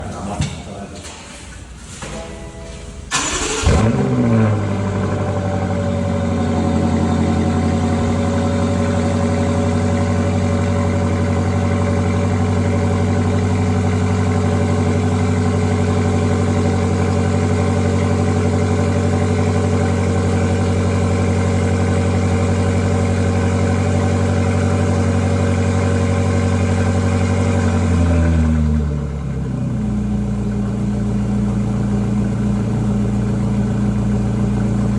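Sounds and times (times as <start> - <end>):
car engine idling: 0.0 - 34.9
starter motor cranking: 3.1 - 4.1.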